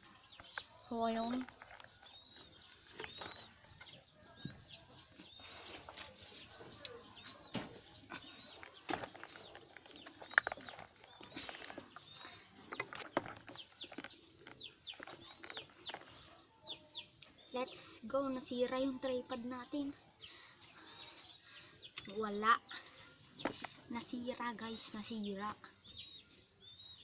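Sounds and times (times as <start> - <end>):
birds chirping: 0.0 - 27.0
rustling: 7.6 - 16.4.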